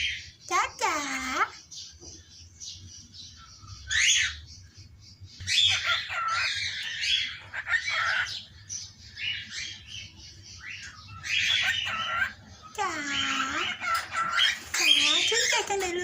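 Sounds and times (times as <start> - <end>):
parrot squawking and chattering: 5.4 - 16.0.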